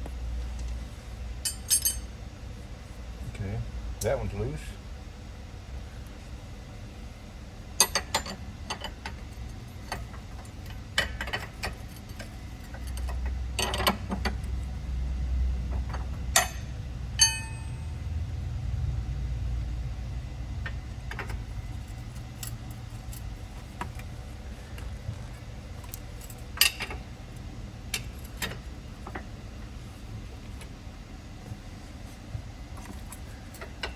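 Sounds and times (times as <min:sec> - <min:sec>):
metal tools clinking: 0:01.5 - 0:02.1, 0:16.4 - 0:17.8
low hum: 0:14.6 - 0:26.4
metal tool ringing strike: 0:16.4 - 0:17.9.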